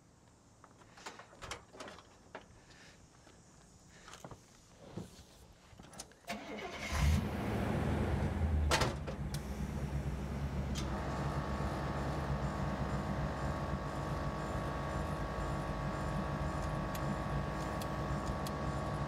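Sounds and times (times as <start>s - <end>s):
car engine starting and idling: 6.3s - 19.0s.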